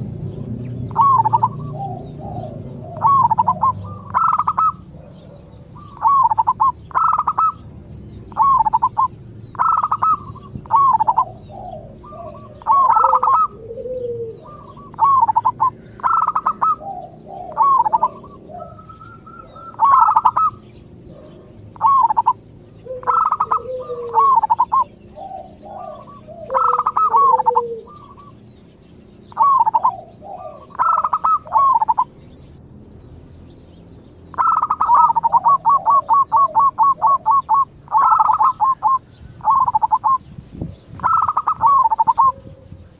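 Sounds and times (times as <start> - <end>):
dove cooing: 0.0 - 32.2, 34.3 - 42.9
soft low falling dove notes: 8.3 - 20.6.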